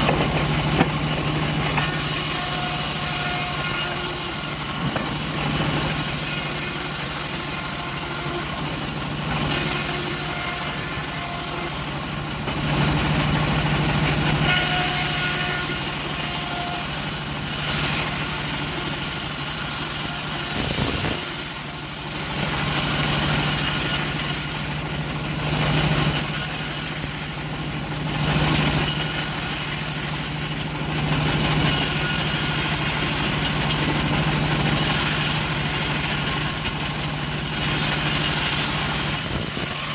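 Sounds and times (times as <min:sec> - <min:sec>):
sawmill engine drone: 0:00.0 - 0:39.9.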